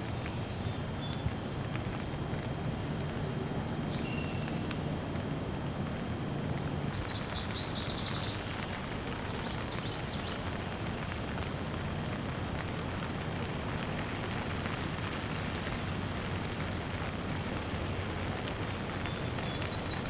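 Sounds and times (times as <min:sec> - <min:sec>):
light rain falling: 0:00.0 - 0:20.0
bird chirping: 0:19.1 - 0:20.0.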